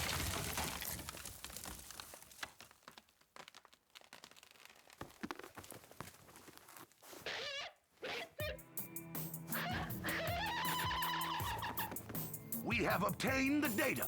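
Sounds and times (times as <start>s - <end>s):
sparse crackles and clicks: 0.0s - 5.8s.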